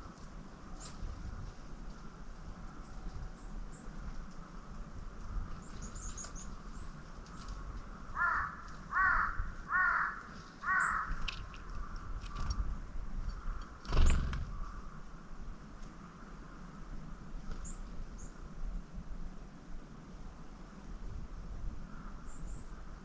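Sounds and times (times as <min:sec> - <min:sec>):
small birds chirping: 0:05.3 - 0:07.7, 0:10.3 - 0:15.0
crow cawing: 0:08.1 - 0:11.2.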